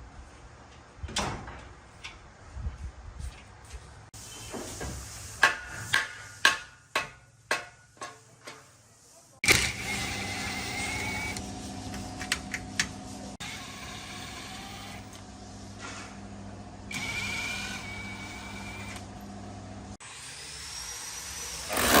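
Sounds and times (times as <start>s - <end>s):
electric power tool whining: 9.4s - 11.4s, 16.9s - 19.1s, 20.0s - 22.0s.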